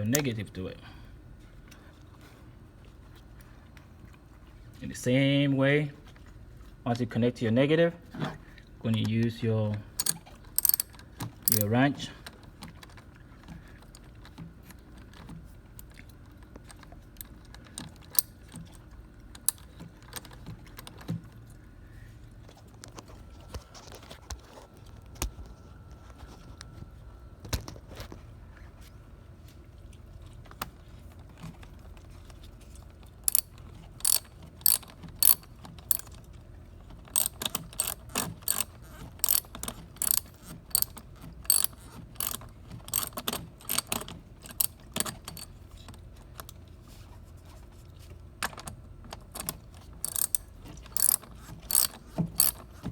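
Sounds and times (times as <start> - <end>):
ratchet wrench clicking: 10.0 - 11.7, 33.3 - 36.1, 37.1 - 45.5, 49.4 - 52.6.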